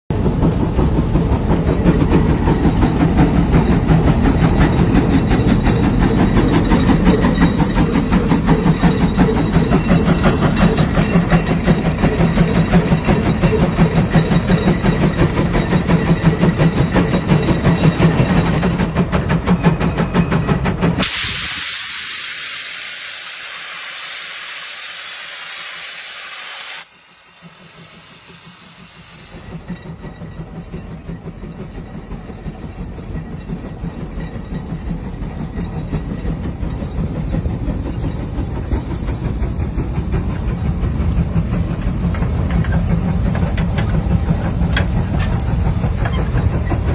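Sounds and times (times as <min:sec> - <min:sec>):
steam traction engine running: 0:00.1 - 0:46.9
steam venting hiss: 0:21.0 - 0:29.6.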